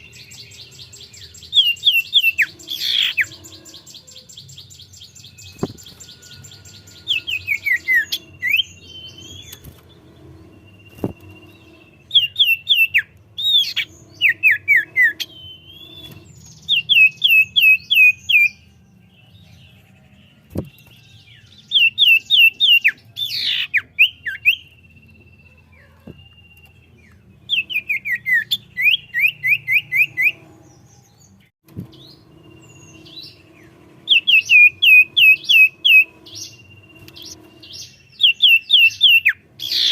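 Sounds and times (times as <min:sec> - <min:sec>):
bird sharp chirps: 0:00.0 - 0:18.7, 0:31.9 - 0:39.9
low hum: 0:00.0 - 0:21.0, 0:29.8 - 0:38.7.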